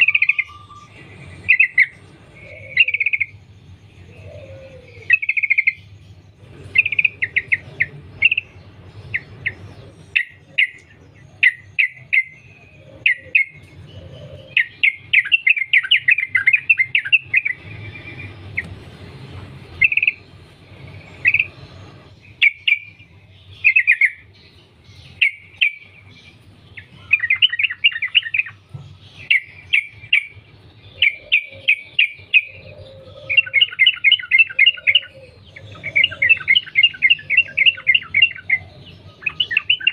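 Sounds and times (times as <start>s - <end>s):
bird singing bubbly phrases: 19.7s - 28.6s, 29.2s - 39.9s.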